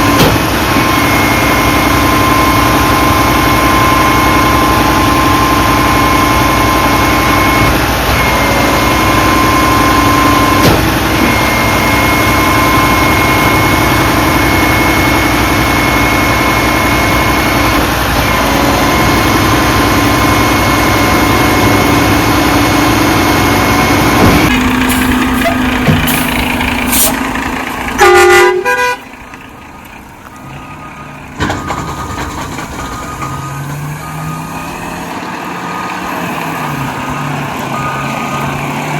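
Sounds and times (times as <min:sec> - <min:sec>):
truck engine revving loudly: 0:00.0 - 0:38.9
loud horn honk: 0:27.9 - 0:29.2.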